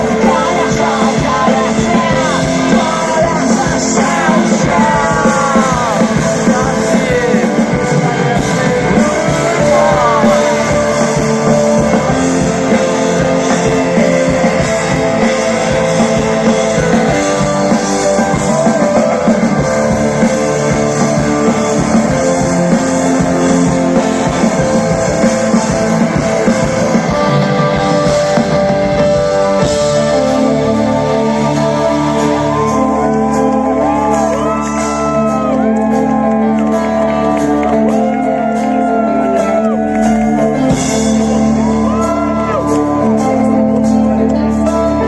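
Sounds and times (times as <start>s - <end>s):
gliding melody line: 0.0s - 45.0s
rock band playing live: 0.0s - 45.0s.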